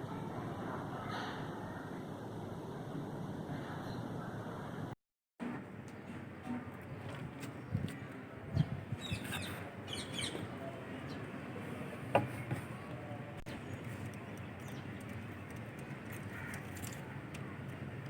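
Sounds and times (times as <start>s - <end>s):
steady background noise: 0.0s - 18.0s
small birds chirping: 7.5s - 11.4s, 13.5s - 16.6s.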